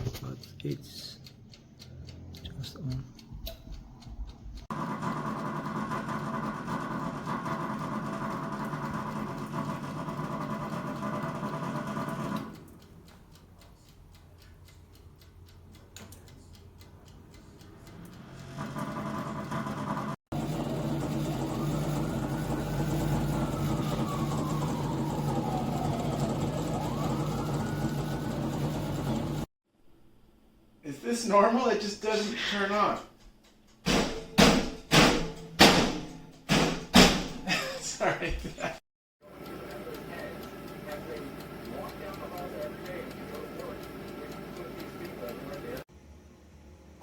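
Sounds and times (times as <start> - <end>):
oven fan motor humming: 0.0 - 29.5, 39.2 - 47.0.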